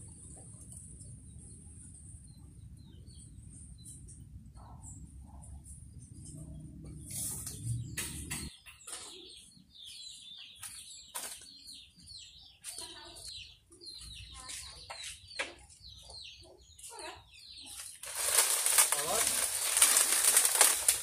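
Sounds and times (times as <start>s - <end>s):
repeated falling bird calls: 7.5s - 21.0s.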